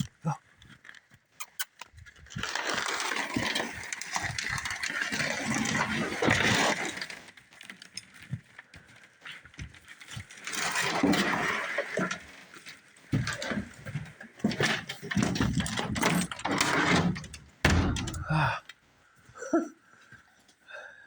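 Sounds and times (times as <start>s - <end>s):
sled scraping along ground: 2.0s - 17.6s.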